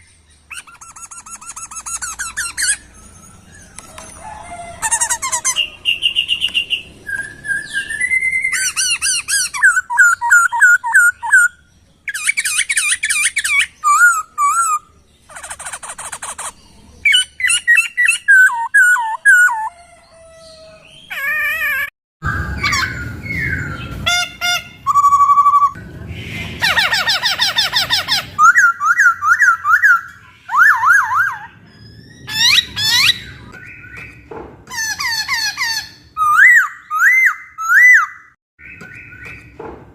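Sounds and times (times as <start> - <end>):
bird singing whistled song: 4.9 - 14.9, 17.1 - 19.8, 22.2 - 26.5, 27.2 - 34.2, 35.1 - 39.6.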